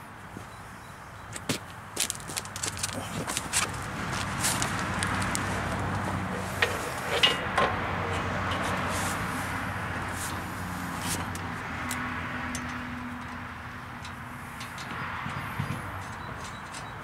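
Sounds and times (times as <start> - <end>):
wind noise: 14.4 - 16.8.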